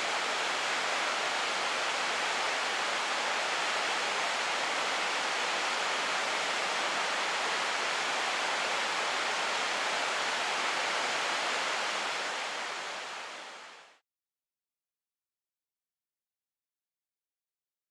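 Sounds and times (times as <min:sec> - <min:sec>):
mountain stream rushing: 0:00.0 - 0:14.0.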